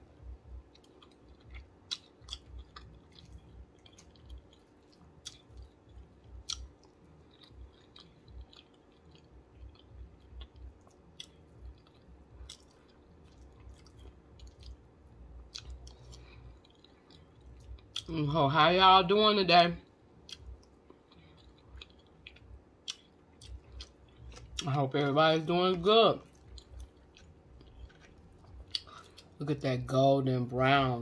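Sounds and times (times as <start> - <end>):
person chewing: 0.1 - 18.1, 20.2 - 24.8, 26.2 - 29.4
small mouth clicks and smacks: 0.6 - 14.8, 20.2 - 24.7, 26.2 - 29.4.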